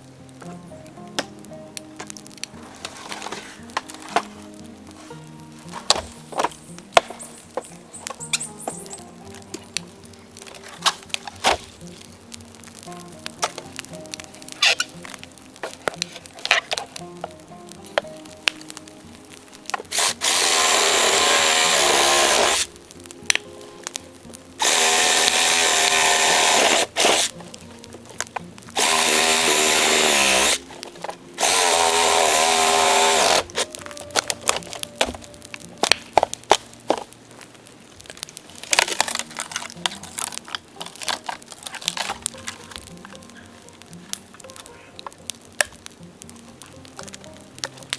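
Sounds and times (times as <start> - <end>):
bamboo crackling and popping: 0.0 - 47.9
power tool whining: 19.7 - 22.8, 24.6 - 27.6, 28.7 - 35.2.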